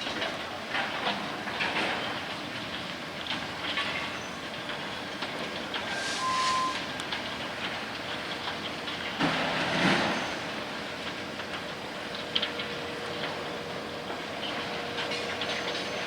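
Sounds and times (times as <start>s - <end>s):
freight train rumbling past: 4.5s - 16.0s
high squeal: 5.9s - 6.9s.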